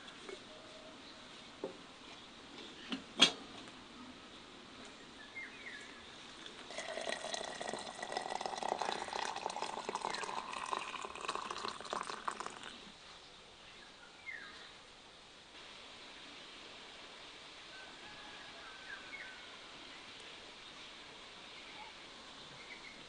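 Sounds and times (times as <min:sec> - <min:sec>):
water pouring into container: 0:06.4 - 0:12.9
faint bird chirps: 0:21.5 - 0:23.0.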